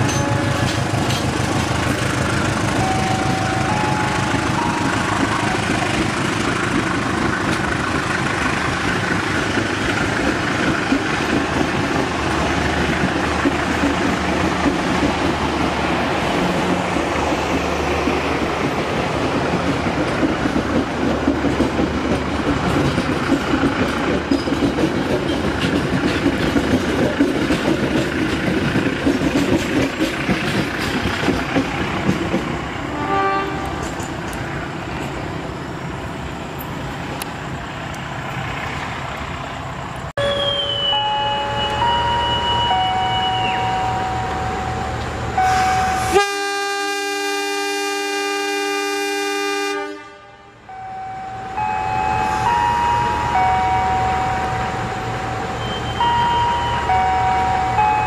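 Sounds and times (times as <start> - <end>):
train carriages rumbling: 0.0 - 58.0
brief pitched tone: 40.2 - 44.6, 55.6 - 58.0.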